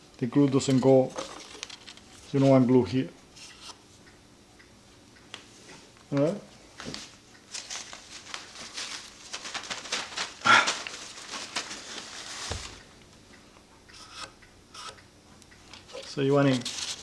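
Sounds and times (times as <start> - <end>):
paper rustling: 1.2 - 2.7, 6.9 - 12.8, 15.7 - 17.0.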